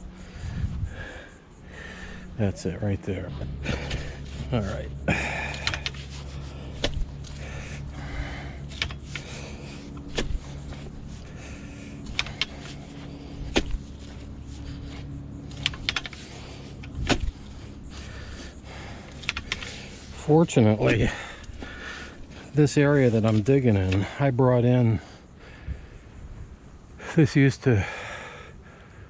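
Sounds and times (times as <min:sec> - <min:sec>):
low hum: 0:00.0 - 0:29.0
digging tool scraping sandy soil: 0:05.5 - 0:24.0.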